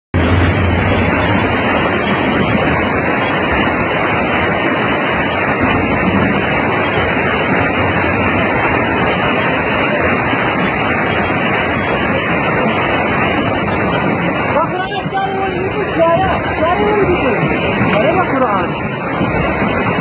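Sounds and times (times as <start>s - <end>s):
floodwater rushing: 0.2s - 20.0s.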